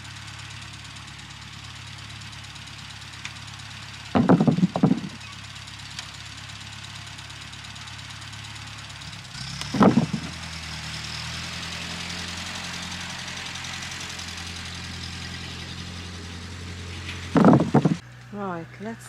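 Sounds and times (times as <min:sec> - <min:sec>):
motor hum: 0:00.0 - 0:19.0
loud knock: 0:04.2 - 0:05.2.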